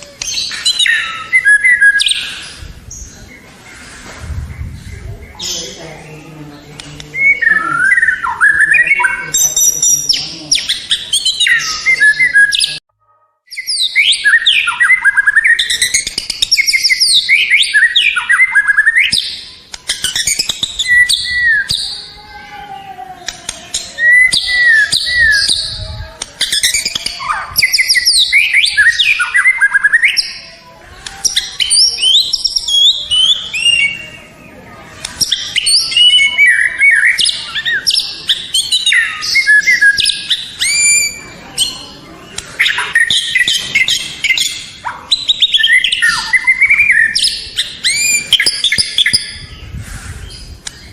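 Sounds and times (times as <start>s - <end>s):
songbird whistles and trills: 0.0s - 3.1s, 13.5s - 22.1s, 23.4s - 30.5s, 35.1s - 49.6s.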